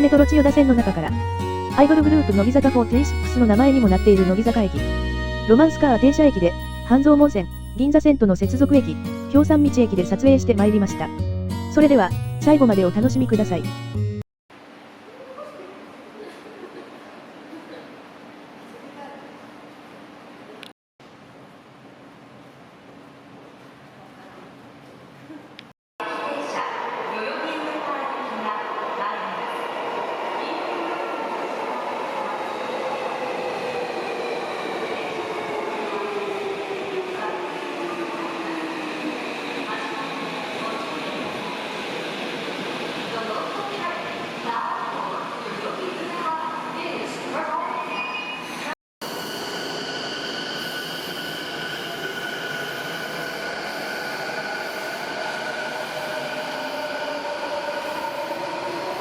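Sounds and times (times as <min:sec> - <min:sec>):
subway train rumble: 0:21.2 - 0:59.0
subway train electric motor whine: 0:49.1 - 0:59.0.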